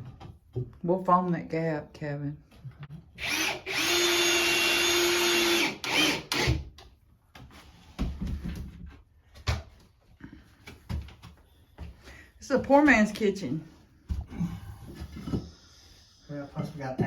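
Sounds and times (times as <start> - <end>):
power drill running: 3.2 - 6.6.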